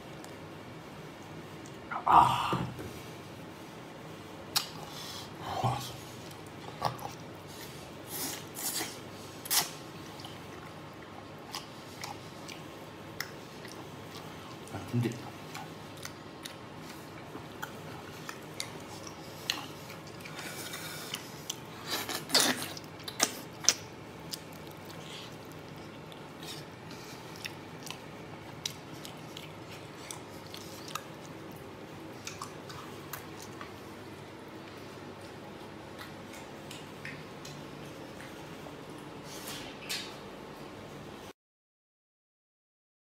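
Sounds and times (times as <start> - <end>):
person chewing with wet mouth clicks: 8.6 - 33.8, 34.6 - 39.1.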